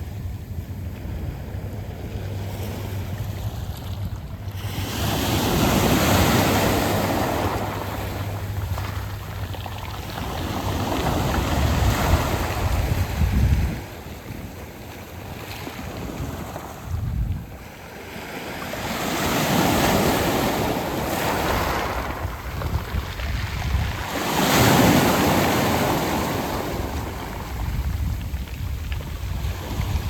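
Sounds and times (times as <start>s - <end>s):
wind rumble on microphone: 0.0s - 30.0s
surf over pebbles: 1.0s - 30.0s.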